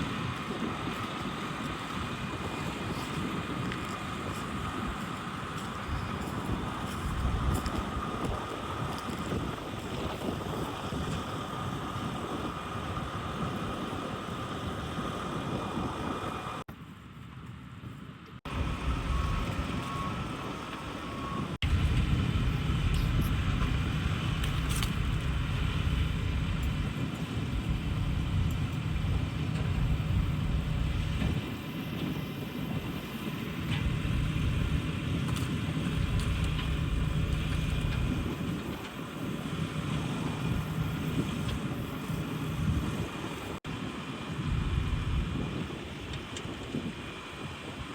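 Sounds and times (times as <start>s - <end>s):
heavy loud rumble: 18.5s - 20.4s, 21.5s - 31.5s, 33.5s - 38.8s, 44.4s - 45.6s
truck machinery running: 18.5s - 43.6s.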